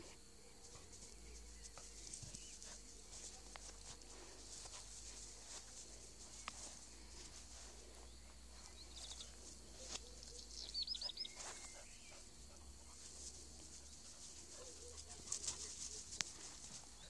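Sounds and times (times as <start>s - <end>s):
rustling on grass: 0.0s - 17.0s
dogs' footfalls on grass: 0.6s - 12.2s, 12.9s - 17.0s
bird chirping: 8.0s - 13.0s.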